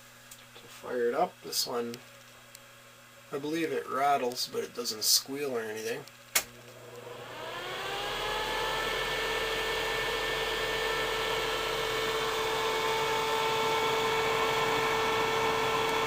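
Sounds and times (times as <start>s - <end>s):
exhaust fan whirring: 0.0s - 16.0s.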